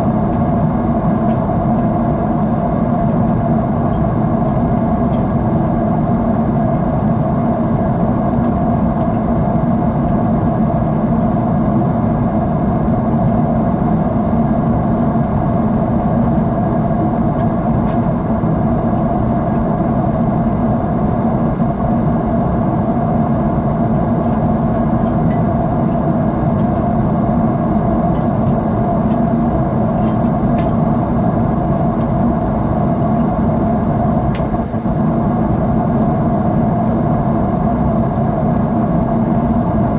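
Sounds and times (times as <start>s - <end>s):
airliner cabin jet engine roar: 0.0s - 39.9s.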